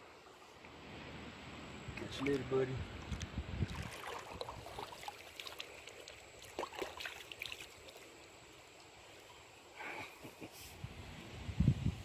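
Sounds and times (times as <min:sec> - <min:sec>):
river water trickling: 0:00.0 - 0:09.8
small splashes and drips: 0:02.0 - 0:08.9.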